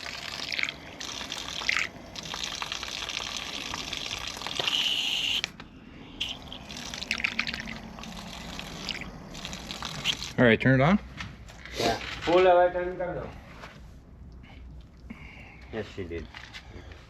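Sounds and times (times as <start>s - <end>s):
water splashing from hose valve: 0.0s - 5.6s, 6.2s - 10.4s.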